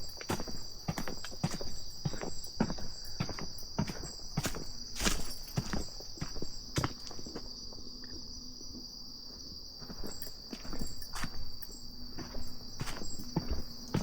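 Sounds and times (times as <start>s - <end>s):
footsteps on path: 0.0s - 7.5s, 9.8s - 14.0s
insects chirring: 0.0s - 14.0s.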